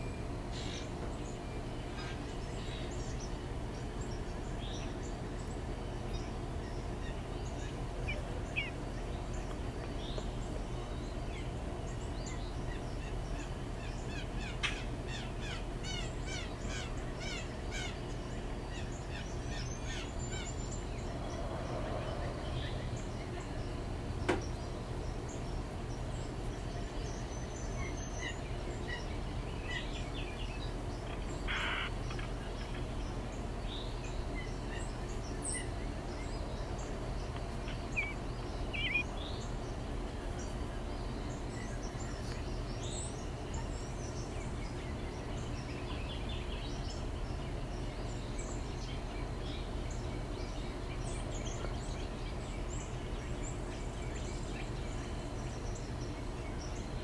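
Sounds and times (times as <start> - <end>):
songbirds chirping: 0.0 - 57.0
steady low hum: 0.0 - 57.0.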